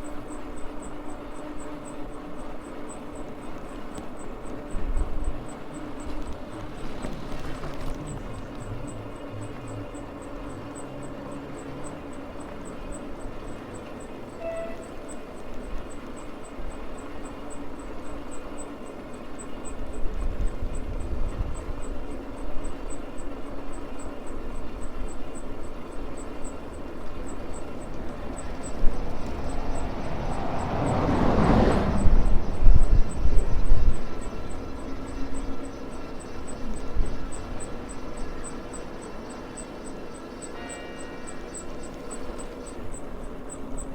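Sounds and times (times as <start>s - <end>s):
e-bike motor hum: 0.0s - 43.9s
faint high ticking: 0.0s - 43.9s
passing vehicle: 0.0s - 43.9s
wind rumble on microphone: 3.6s - 10.9s, 19.6s - 22.9s, 26.8s - 39.0s
tyre and wind noise: 4.6s - 9.2s, 27.8s - 35.6s.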